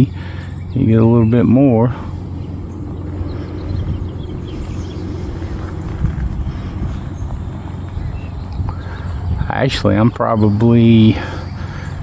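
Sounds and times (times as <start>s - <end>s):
model plane motor buzzing: 0.0s - 9.5s
wind rumble: 0.0s - 12.0s.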